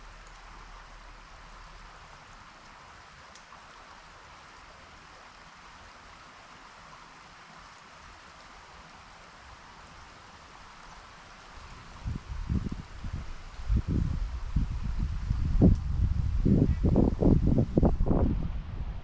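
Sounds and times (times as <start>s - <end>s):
river water rushing: 0.0s - 14.3s.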